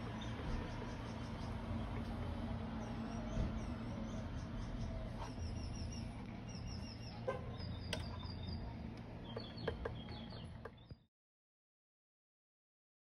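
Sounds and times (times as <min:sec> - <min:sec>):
steady low hum: 0:00.0 - 0:11.0
small birds chirping: 0:00.0 - 0:11.1.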